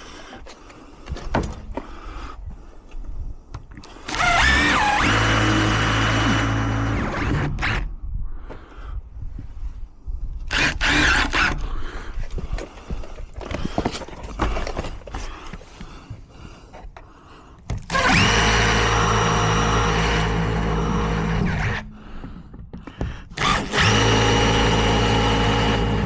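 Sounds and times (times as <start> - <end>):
knocks and handling clatter: 0.2 - 2.0, 12.2 - 18.0, 22.0 - 23.6
power tool motor running: 4.0 - 7.8, 10.5 - 11.6, 17.8 - 22.0, 23.3 - 26.0.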